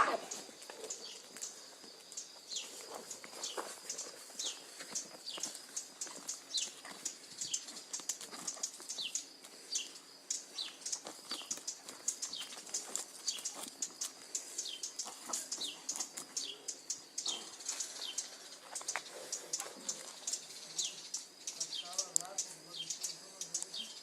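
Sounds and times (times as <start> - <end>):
small birds chirping: 0.0 - 24.0
sharp high ticks: 3.9 - 23.8.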